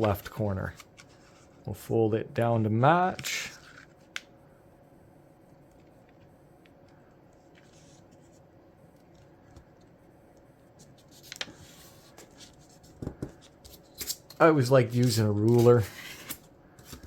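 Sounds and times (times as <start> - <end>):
paper rustling and scraping: 10.8 - 17.0.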